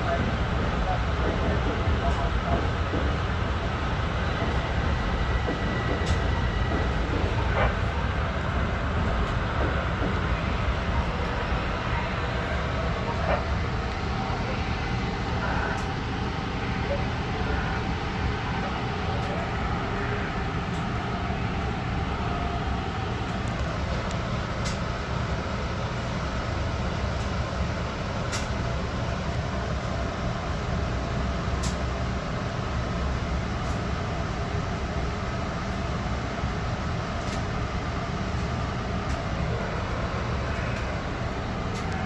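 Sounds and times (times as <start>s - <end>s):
train wheels rumbling: 0.0s - 30.7s.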